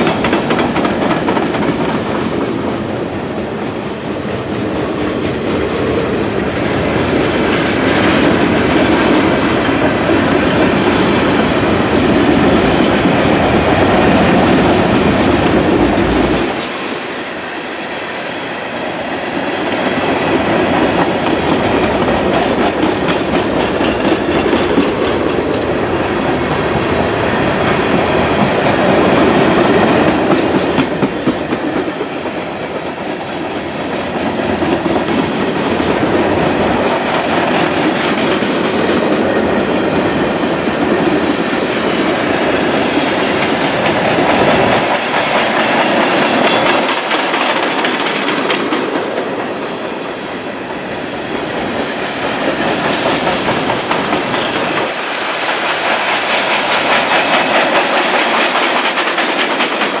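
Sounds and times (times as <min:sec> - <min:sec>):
wheels clacking over rail joints: 0:00.0 - 0:02.9, 0:19.4 - 0:49.7, 0:51.3 - 1:00.0
steel wheels rolling on rail: 0:00.0 - 1:00.0.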